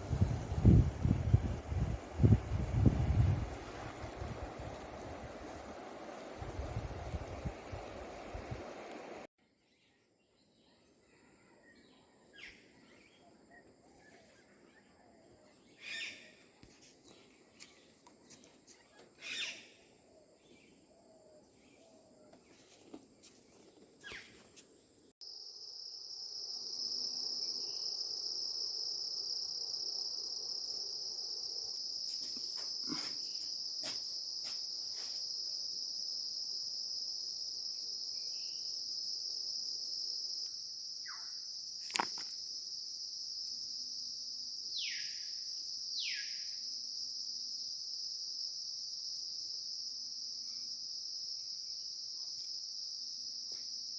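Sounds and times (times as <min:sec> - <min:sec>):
high-pitched insect chorus: 0:00.0 - 0:09.0, 0:25.2 - 0:53.9.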